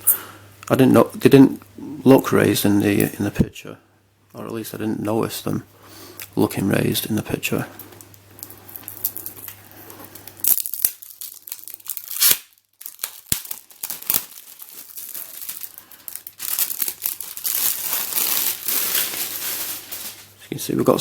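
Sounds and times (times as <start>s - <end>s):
plastic packaging crinkling: 7.8s - 21.0s.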